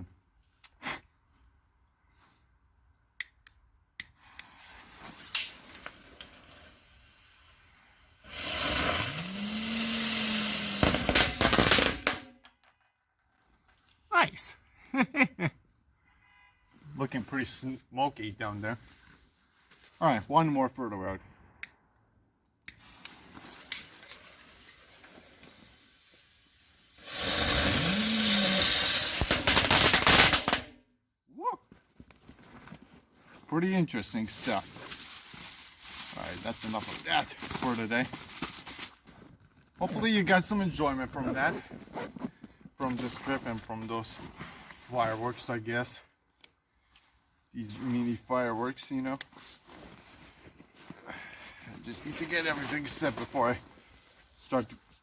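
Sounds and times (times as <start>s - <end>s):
sparkler hissing and crackling: 4.2s - 12.2s, 22.8s - 30.7s.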